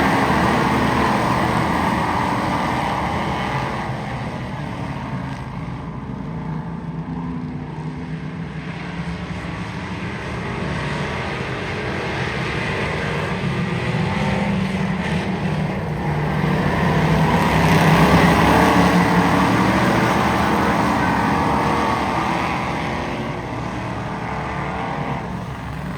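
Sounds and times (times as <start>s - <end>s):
race car engine running: 0.0s - 4.8s, 13.5s - 25.9s.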